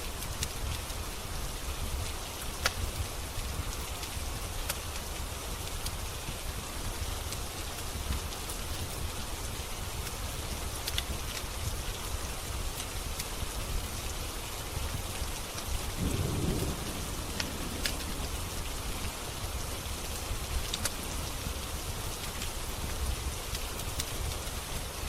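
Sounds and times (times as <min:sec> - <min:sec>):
steady rain: 0:00.0 - 0:25.0
wood fire crackling: 0:00.0 - 0:25.0
thunder rumble: 0:16.0 - 0:22.0.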